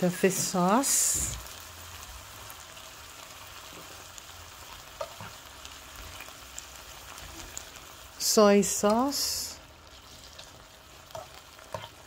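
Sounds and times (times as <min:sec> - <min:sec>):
meat sizzling in a skillet: 0:00.0 - 0:12.0
spatula scraping: 0:09.9 - 0:12.0.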